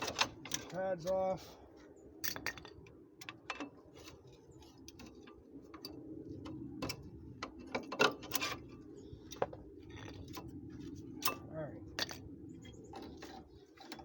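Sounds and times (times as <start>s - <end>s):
steady low hum: 0.0s - 14.0s
hand tools clicking and knocking: 12.9s - 14.0s.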